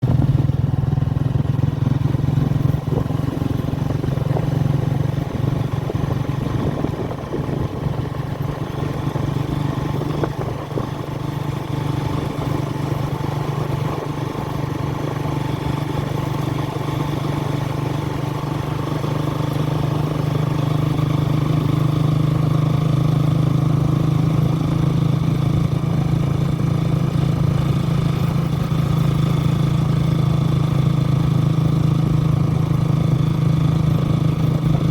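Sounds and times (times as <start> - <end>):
engine humming steadily: 0.0 - 34.9.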